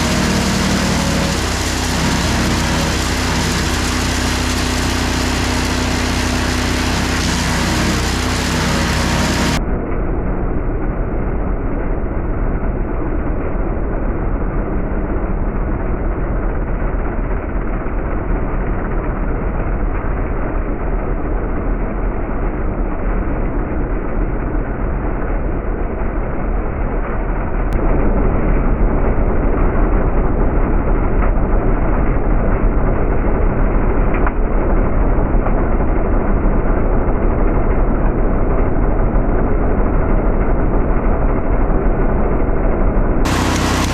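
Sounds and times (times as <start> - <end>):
wood being chipped: 0.0 - 9.6, 43.3 - 43.9
wood chipper engine running: 0.0 - 9.6, 27.8 - 43.9.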